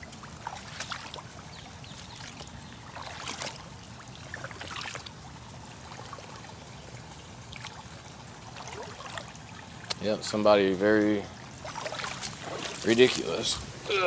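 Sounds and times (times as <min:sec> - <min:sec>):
splashes of person wading: 0:00.0 - 0:05.2, 0:07.5 - 0:09.9, 0:11.4 - 0:14.0
creek water trickling: 0:00.0 - 0:14.0.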